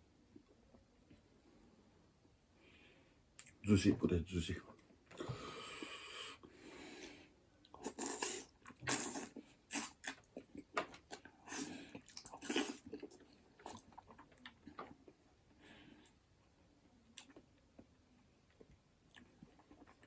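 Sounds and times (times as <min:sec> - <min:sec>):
wet chewing with lip-smacks: 0:07.6 - 0:15.2.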